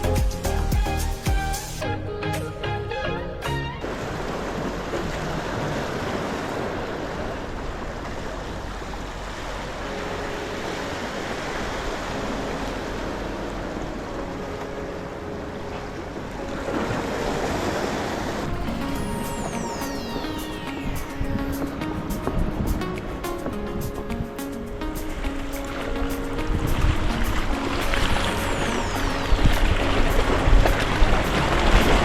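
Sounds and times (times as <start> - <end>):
sea waves washing on shore: 3.8 - 32.0
wind on microphone: 16.1 - 32.0.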